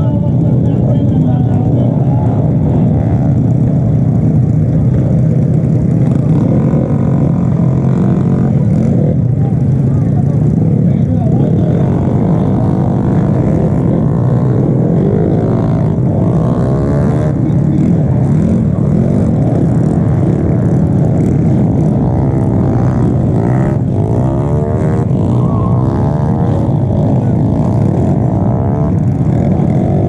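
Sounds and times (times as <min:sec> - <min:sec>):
motorcycle engines revving: 0:00.0 - 0:30.0
steady low rumble: 0:00.0 - 0:30.0.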